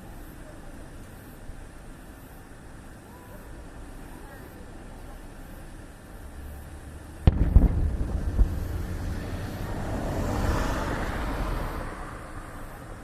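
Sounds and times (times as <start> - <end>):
fireworks booming: 7.2 - 11.2
rush of noise: 7.2 - 13.0.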